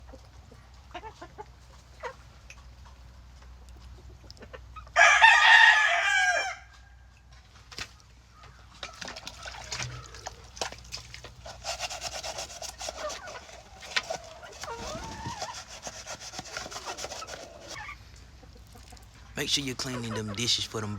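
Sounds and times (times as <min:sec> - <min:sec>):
rooster crowing: 0:05.0 - 0:07.0
rough scraping: 0:09.7 - 0:18.2.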